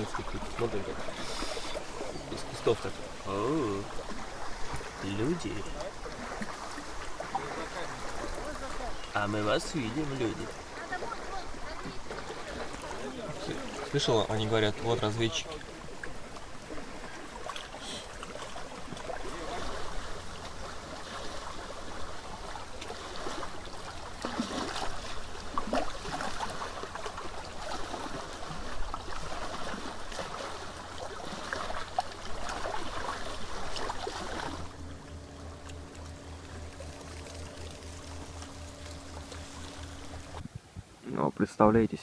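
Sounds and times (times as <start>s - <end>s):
low hum: 0.0s - 40.8s
water lapping at shore: 0.0s - 42.0s
faint steady tones: 33.3s - 42.0s.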